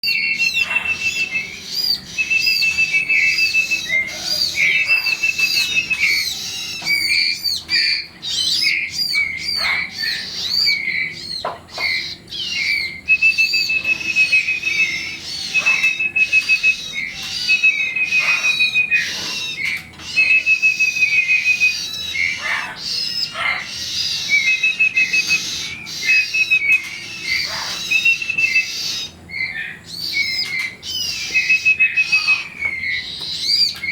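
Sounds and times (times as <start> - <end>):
bird trill: 0.0 - 33.9
young birds chirping: 0.0 - 33.9.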